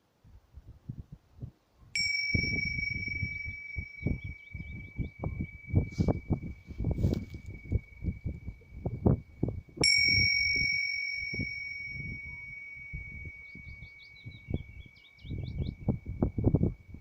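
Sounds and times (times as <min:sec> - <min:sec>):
bell ringing: 0:02.0 - 0:14.7
bird chirps: 0:02.3 - 0:09.4, 0:12.0 - 0:16.2.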